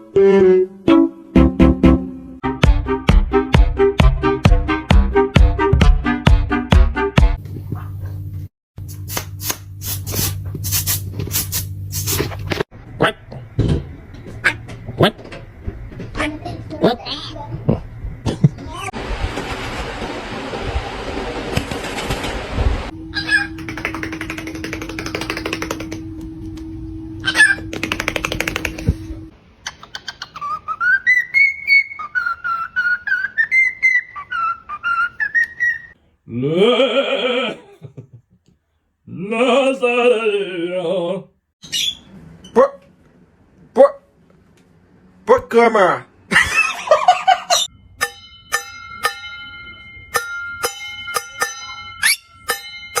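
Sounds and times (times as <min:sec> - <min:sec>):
low hum: 0:22.8 - 0:29.3
parrot whistling: 0:23.1 - 0:26.1, 0:27.2 - 0:28.6, 0:29.6 - 0:36.0, 0:52.0 - 0:52.3
parrot clicks: 0:23.4 - 0:26.7, 0:27.6 - 0:29.1
small metal bell ringing: 0:47.7 - 0:53.0.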